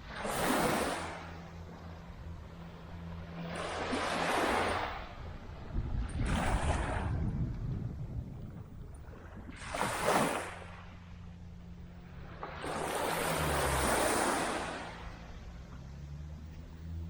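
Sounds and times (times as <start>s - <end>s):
waves washing on sand: 0.0s - 2.1s, 3.0s - 7.6s, 9.2s - 11.1s, 12.3s - 16.2s
wind rumble on microphone: 0.0s - 17.0s.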